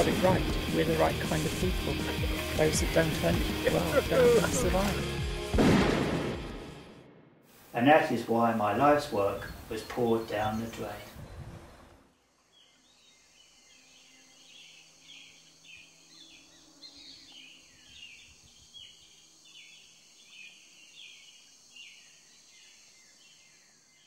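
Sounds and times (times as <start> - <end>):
steady faint hiss: 7.5 - 13.5
faint birdsong chirps: 7.8 - 24.0.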